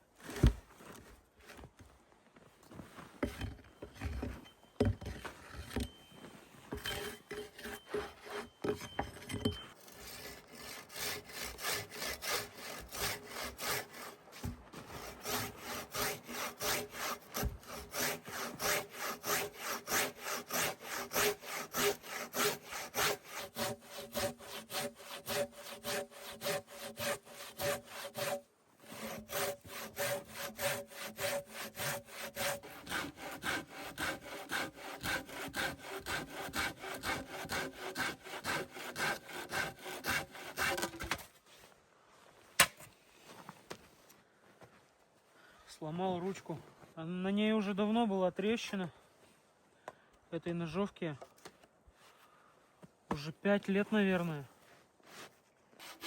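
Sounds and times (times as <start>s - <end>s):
handsaw cutting wood: 6.7s - 8.6s, 9.8s - 41.3s, 55.2s - 56.0s.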